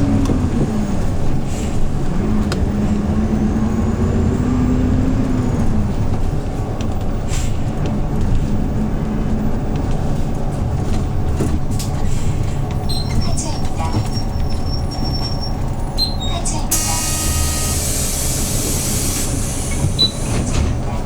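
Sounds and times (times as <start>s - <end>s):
bus engine rumble and hum: 0.0s - 21.0s.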